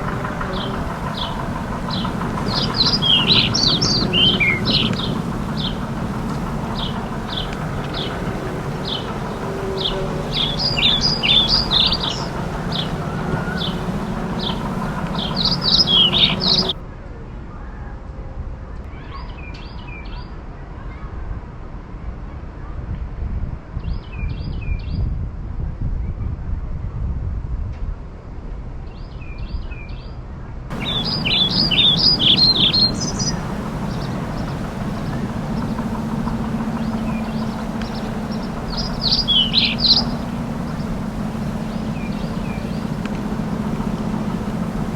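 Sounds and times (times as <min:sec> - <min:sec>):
small birds chirping: 0:00.0 - 0:16.8, 0:30.7 - 0:44.9
steady low hum: 0:00.0 - 0:16.8, 0:30.7 - 0:44.9.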